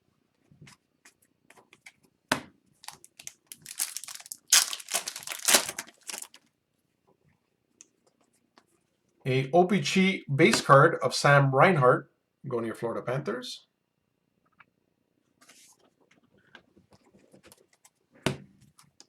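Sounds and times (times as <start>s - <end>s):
plastic crinkling: 2.8s - 6.4s
plastic wrapper being torn open: 2.8s - 6.4s.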